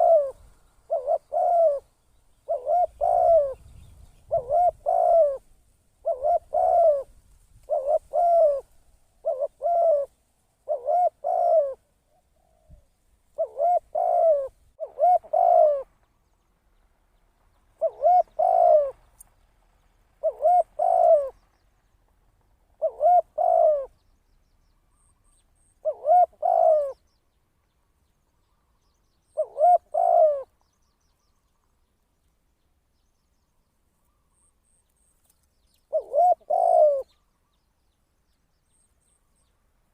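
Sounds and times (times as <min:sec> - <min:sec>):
dove cooing: 0:00.0 - 0:16.0, 0:17.8 - 0:19.1, 0:20.2 - 0:21.4, 0:22.8 - 0:24.0, 0:25.8 - 0:27.0, 0:29.3 - 0:30.6, 0:35.9 - 0:37.2.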